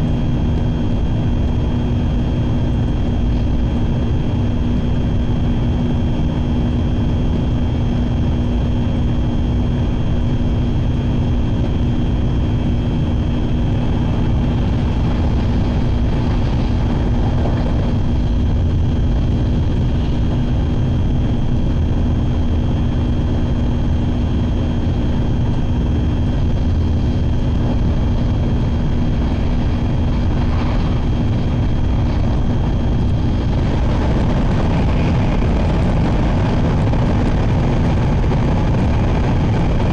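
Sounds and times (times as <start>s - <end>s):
electric hum: 0.0s - 39.9s
train wheels rumbling on track: 13.4s - 21.8s, 26.3s - 39.9s.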